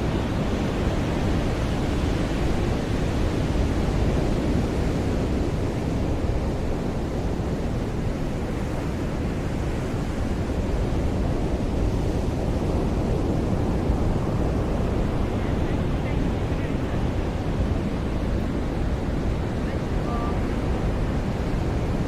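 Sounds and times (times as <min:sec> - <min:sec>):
ocean waves breaking on beach: 0:00.0 - 0:22.0.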